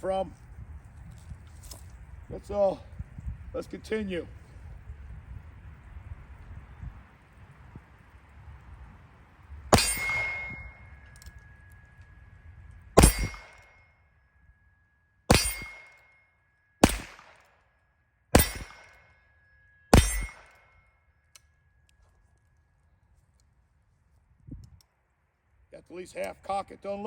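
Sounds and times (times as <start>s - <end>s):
gunshots with ringing: 9.7s - 11.2s, 13.0s - 13.8s, 15.3s - 16.2s, 16.8s - 17.6s, 18.3s - 20.7s.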